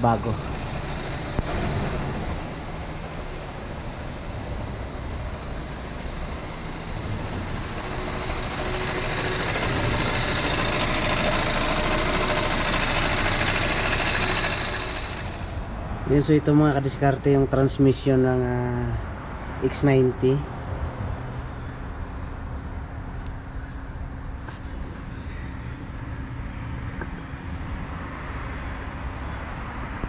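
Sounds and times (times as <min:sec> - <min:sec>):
car engine idling: 0:00.0 - 0:15.7.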